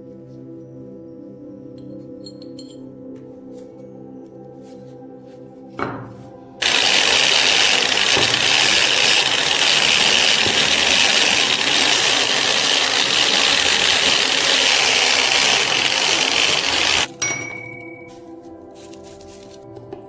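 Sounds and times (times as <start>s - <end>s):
sandblaster hissing: 6.6s - 17.1s.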